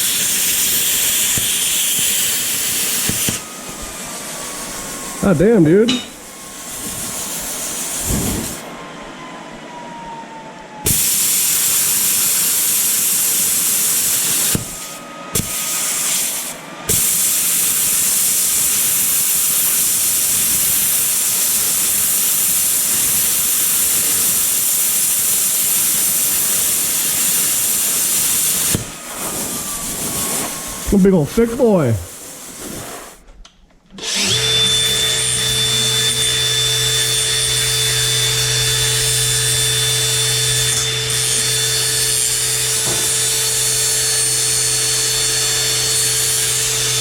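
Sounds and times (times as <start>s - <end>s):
plasma cutter hissing: 0.0s - 3.4s, 5.9s - 8.7s, 10.9s - 31.0s.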